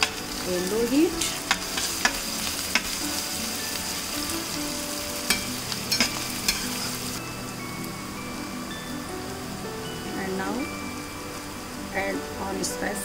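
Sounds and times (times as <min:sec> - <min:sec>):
onion sizzling in oil: 0:00.0 - 0:13.0
metal spatula clacking against pan: 0:05.3 - 0:06.8.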